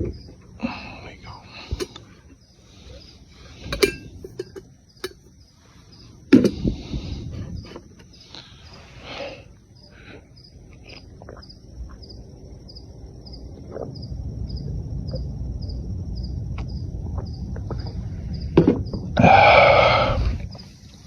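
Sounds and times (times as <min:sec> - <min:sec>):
insect chirping: 0:00.0 - 0:21.0
low rumble: 0:12.7 - 0:18.5.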